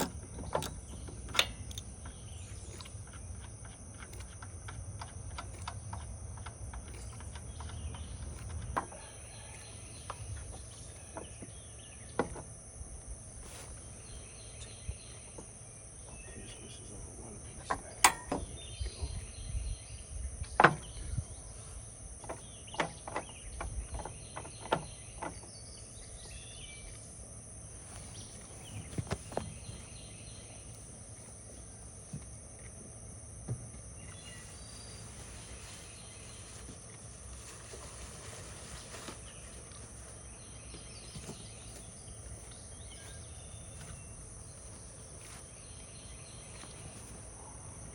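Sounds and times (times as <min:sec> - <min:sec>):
insects droning: 0:00.0 - 0:47.9
hand tools clanking on metal: 0:18.0 - 0:18.4
bird chirps: 0:37.4 - 0:47.1.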